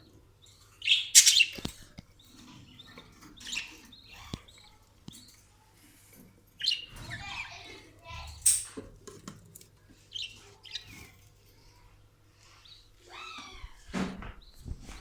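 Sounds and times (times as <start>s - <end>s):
budgerigars chirping: 0.6s - 4.6s.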